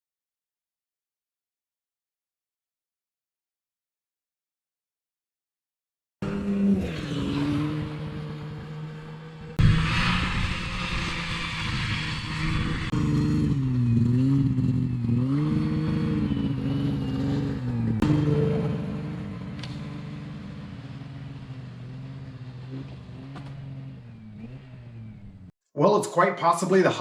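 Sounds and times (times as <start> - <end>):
snowmobile engine revving: 6.2 - 25.5.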